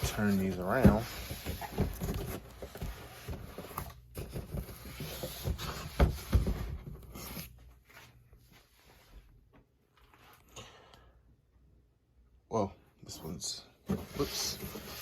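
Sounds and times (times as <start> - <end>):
cardboard scraping and rubbing: 0.0 - 7.6, 13.9 - 15.0.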